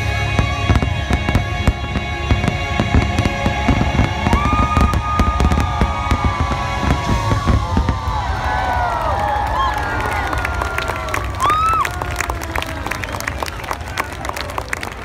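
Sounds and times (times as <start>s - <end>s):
music playing: 0.0s - 8.3s
fireworks bursts and crackles: 0.0s - 15.0s.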